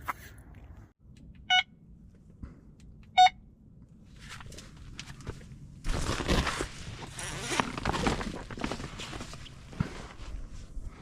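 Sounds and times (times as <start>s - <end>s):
bite alarm bleeps: 1.5s - 1.7s, 3.1s - 3.4s.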